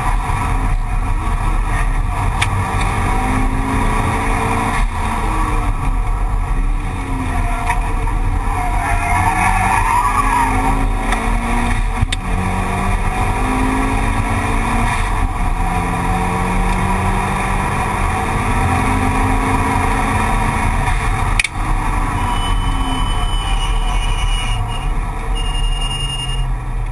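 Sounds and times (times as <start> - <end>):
car engine accelerating: 0.0 - 26.9.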